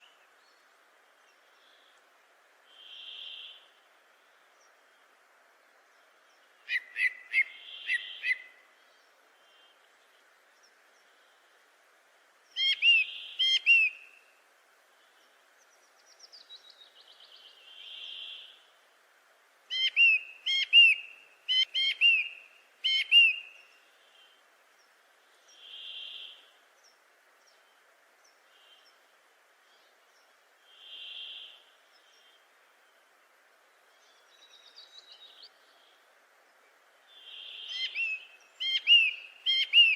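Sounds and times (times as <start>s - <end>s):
faint steady hiss: 0.0s - 39.9s
bird calling sharp repeated notes: 6.7s - 8.6s, 12.6s - 14.0s, 19.7s - 23.6s, 37.2s - 39.9s.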